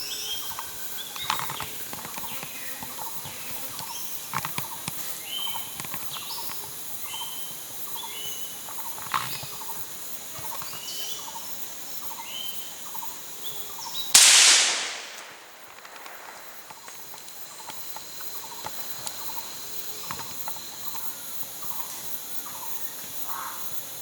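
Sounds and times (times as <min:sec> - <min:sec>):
sudden loud crack: 0:14.2 - 0:17.2.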